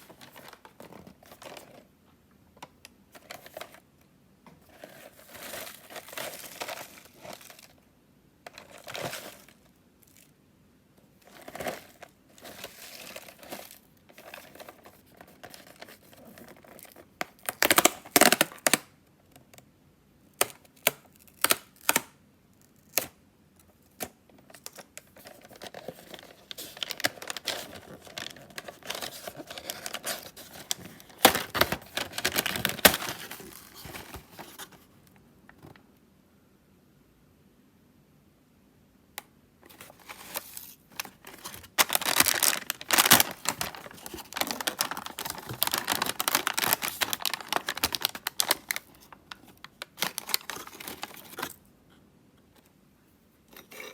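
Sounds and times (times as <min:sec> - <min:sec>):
plastic wrapper crinkling: 0:04.8 - 0:07.8, 0:11.2 - 0:18.8, 0:24.5 - 0:34.8, 0:39.7 - 0:51.7
packaging tearing: 0:25.2 - 0:34.8, 0:39.7 - 0:51.6.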